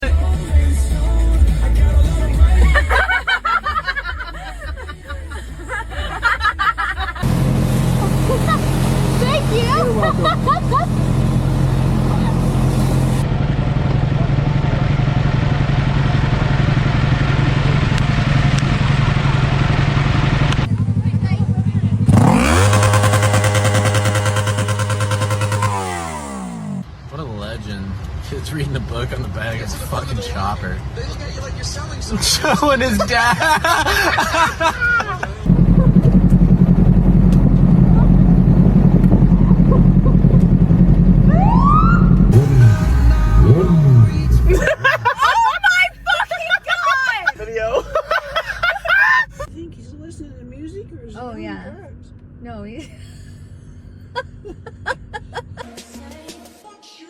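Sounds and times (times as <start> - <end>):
motorcycle engine running: 7.0 - 26.9, 35.5 - 46.1
rising and falling tone: 22.2 - 26.8, 35.5 - 45.6.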